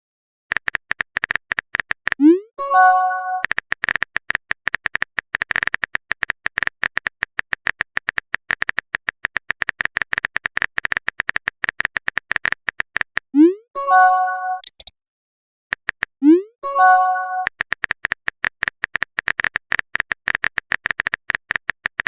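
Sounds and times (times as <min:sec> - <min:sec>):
phone keyboard typing clicks: 0:00.5 - 0:02.3, 0:03.3 - 0:13.3, 0:14.6 - 0:14.9, 0:15.7 - 0:16.2, 0:17.4 - 0:22.0
multi-tone notification chime: 0:02.6 - 0:03.4, 0:13.8 - 0:14.6, 0:16.6 - 0:17.5.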